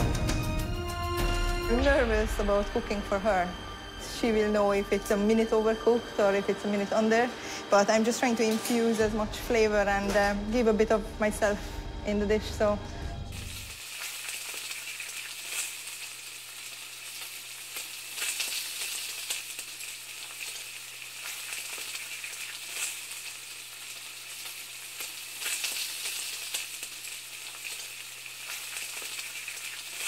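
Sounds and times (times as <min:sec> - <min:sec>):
low steady hum: 0:01.7 - 0:13.8
sizzling hiss with crackles: 0:13.3 - 0:30.0.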